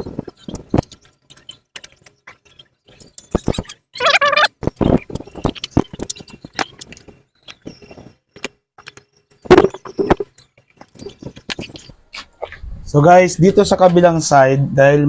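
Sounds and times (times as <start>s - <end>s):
hand tools clicking and knocking: 0.0s - 11.9s.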